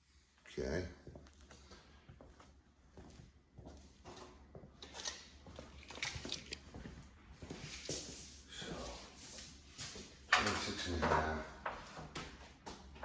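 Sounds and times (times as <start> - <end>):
wood and tools being handled: 4.0 - 6.7.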